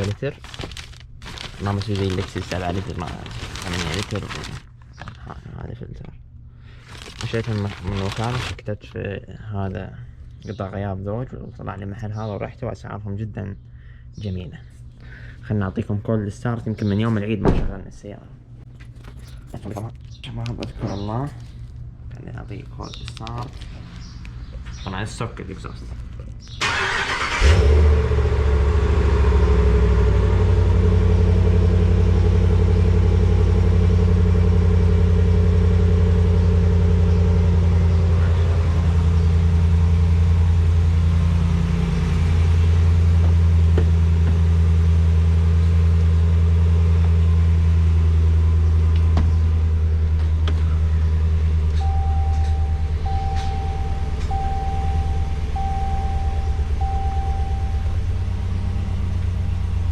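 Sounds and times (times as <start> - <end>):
car engine idling: 0.0 - 4.7, 26.6 - 59.9
short electronic beep: 51.8 - 58.0.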